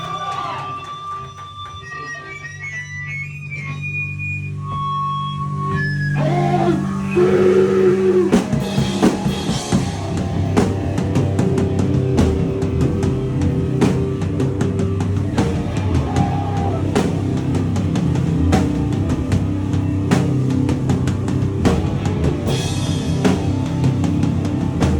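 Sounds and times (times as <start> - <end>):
loud rock band playing: 5.8 - 24.9
fast dense drumming: 7.2 - 24.9.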